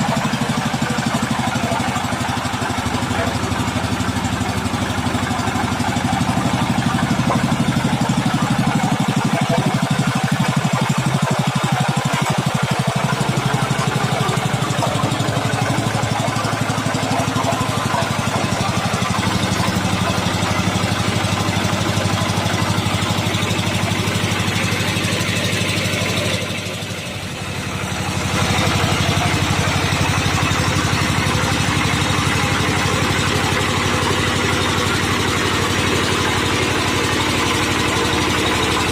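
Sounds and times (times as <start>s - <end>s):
road roller engine running: 0.0s - 38.9s.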